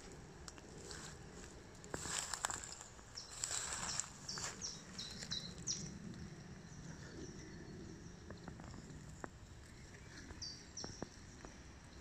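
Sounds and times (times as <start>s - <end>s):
walking through wet grass: 0.0s - 5.7s
songbird chirping: 0.8s - 12.0s.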